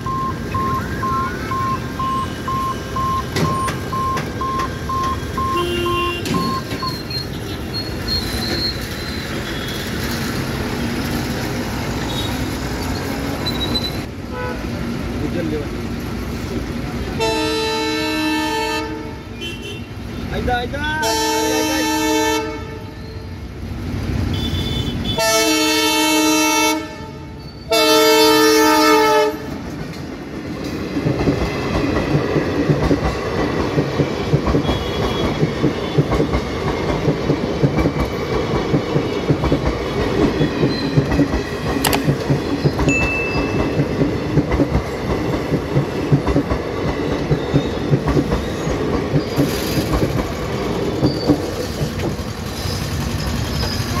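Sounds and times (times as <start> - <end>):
train wheels clacking on rails: 1.5 - 14.1, 29.5 - 54.0
locomotive horn blast: 5.4 - 6.5, 14.3 - 14.7, 17.2 - 19.9, 21.0 - 23.0, 24.3 - 29.6.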